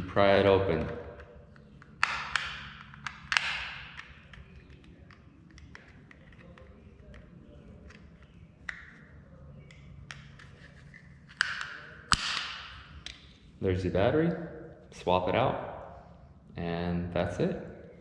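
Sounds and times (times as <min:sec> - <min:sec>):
sharp plastic crack: 0:00.7 - 0:06.6, 0:11.3 - 0:13.3
plastic case clicking and snapping: 0:00.8 - 0:07.2.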